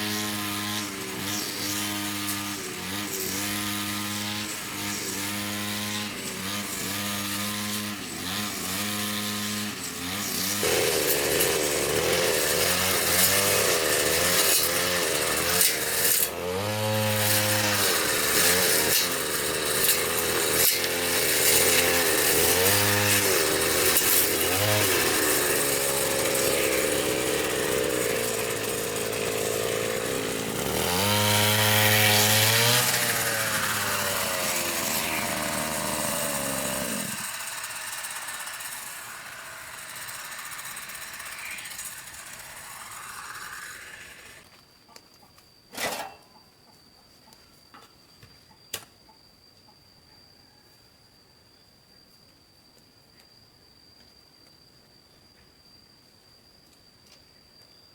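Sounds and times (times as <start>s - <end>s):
chainsaw cutting: 0.0s - 44.6s.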